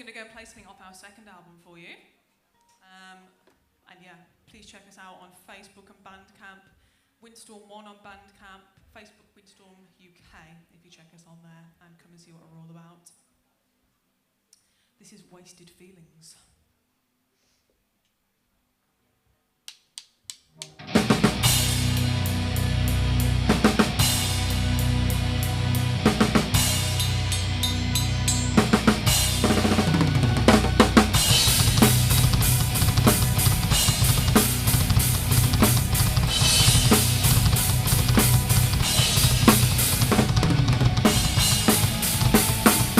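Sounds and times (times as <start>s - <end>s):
drum kit: 20.6s - 42.9s
live band playing heavy song: 20.8s - 42.9s.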